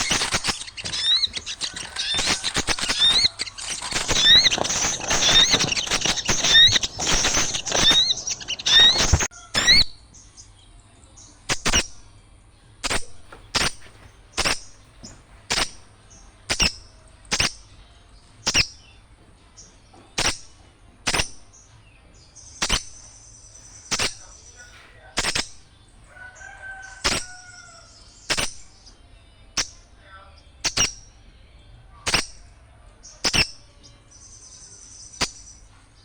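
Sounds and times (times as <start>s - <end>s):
faint held bird call: 0.0s - 10.0s
small birds chip calls: 0.0s - 36.0s.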